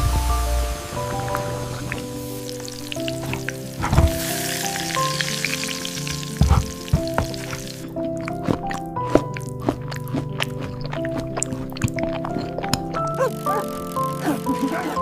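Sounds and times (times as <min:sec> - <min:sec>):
food sizzling in a pan: 0:00.0 - 0:07.9
gentle background music: 0:00.0 - 0:15.0.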